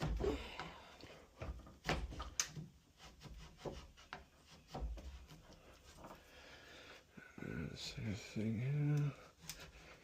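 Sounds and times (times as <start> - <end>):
chisel paring wood: 0.0 - 5.7.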